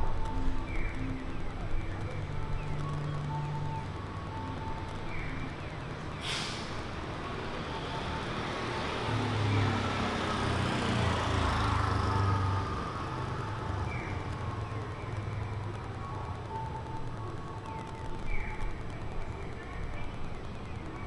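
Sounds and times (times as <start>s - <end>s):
brief sharp hiss: 6.2s - 6.8s
vehicle driving past: 7.7s - 14.5s.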